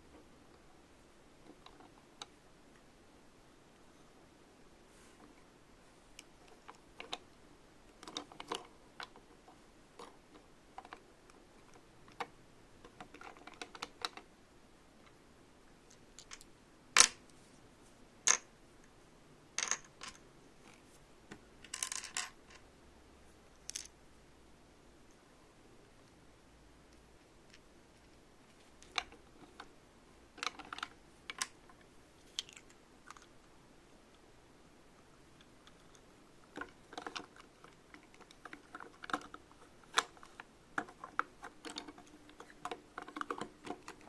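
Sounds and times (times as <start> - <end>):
plastic toy pieces clicking: 30.4 - 31.6.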